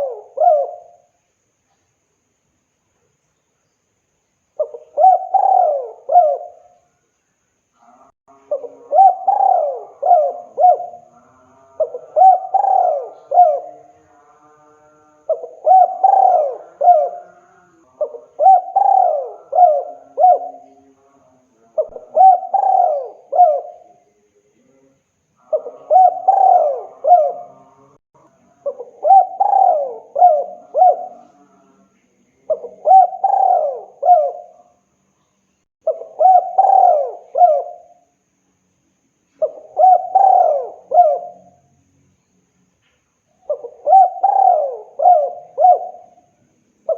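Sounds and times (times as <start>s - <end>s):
dove cooing: 0.0s - 1.2s, 4.6s - 6.8s, 8.4s - 13.9s, 15.3s - 20.9s, 21.8s - 24.0s, 25.4s - 28.0s, 28.6s - 31.5s, 32.5s - 34.7s, 35.8s - 38.0s, 39.4s - 41.6s, 43.4s - 46.3s.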